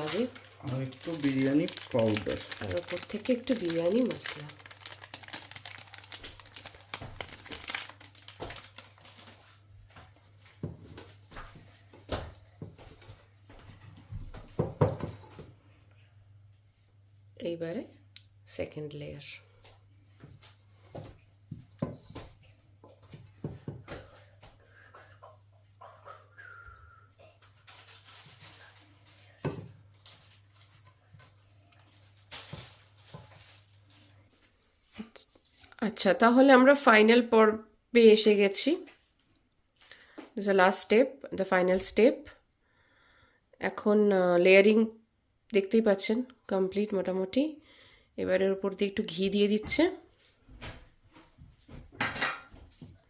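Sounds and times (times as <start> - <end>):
spice packet crinkling: 0.0 - 9.5.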